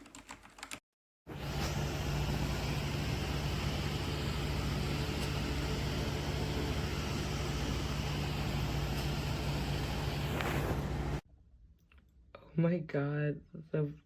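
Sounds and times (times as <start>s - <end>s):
low electrical hum: 1.3s - 11.2s
steady hiss: 1.4s - 11.2s.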